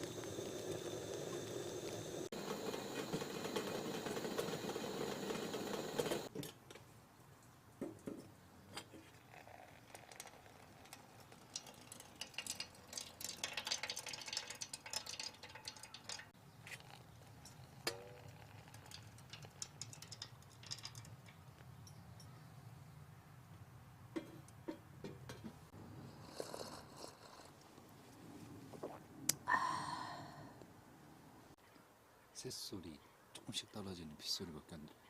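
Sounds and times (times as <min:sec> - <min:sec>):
steady hiss: 0:00.0 - 0:06.3
raindrops dripping: 0:09.8 - 0:21.4.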